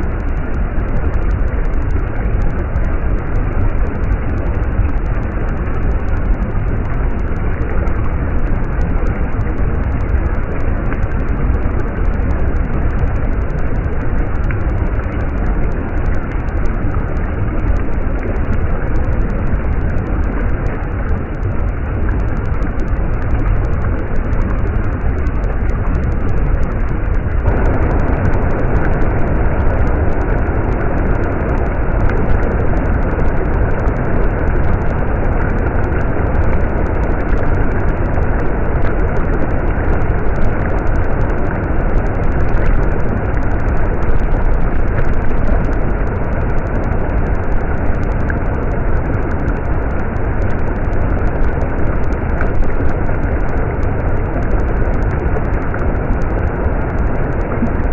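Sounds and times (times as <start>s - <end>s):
stream water rushing: 27.3s - 32.8s.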